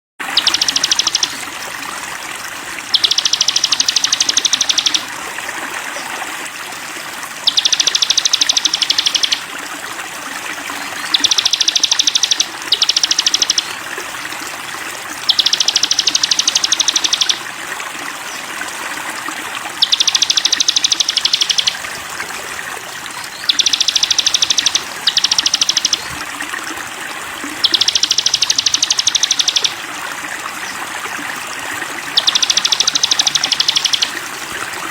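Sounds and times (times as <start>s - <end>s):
running water: 0.2s - 34.9s
songbird singing a high trill: 0.4s - 1.4s, 2.9s - 5.1s, 7.4s - 9.5s, 10.8s - 13.8s, 15.3s - 17.4s, 19.8s - 21.8s, 23.1s - 26.2s, 27.6s - 29.8s, 32.1s - 34.2s.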